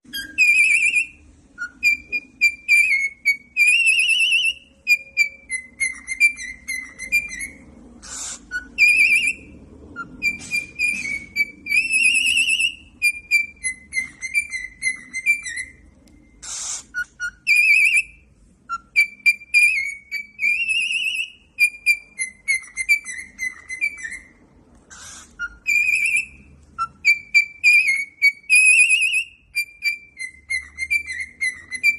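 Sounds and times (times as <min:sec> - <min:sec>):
cockatiel whistling warbling tune: 0:00.1 - 0:31.9
cockatiel harsh rasp: 0:08.0 - 0:09.0, 0:16.4 - 0:17.1, 0:24.9 - 0:26.2.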